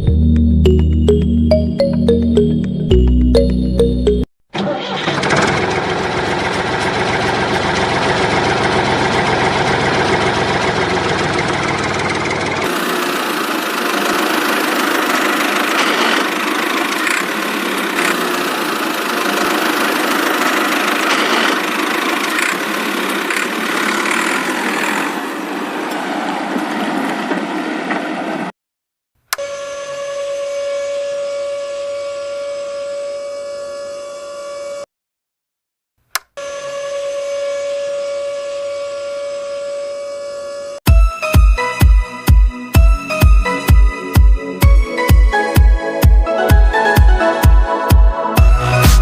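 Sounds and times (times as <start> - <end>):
small motor whirring: 12.7 - 25.4.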